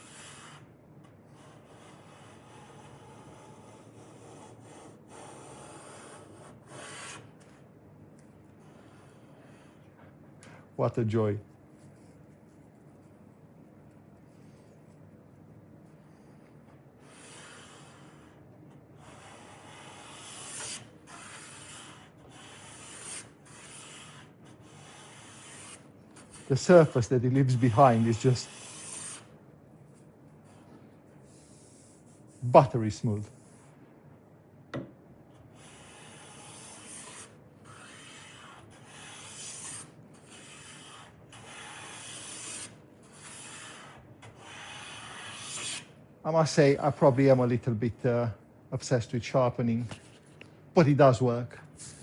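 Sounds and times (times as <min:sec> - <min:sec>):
hand plane shaving a board: 0:35.9 - 0:45.9.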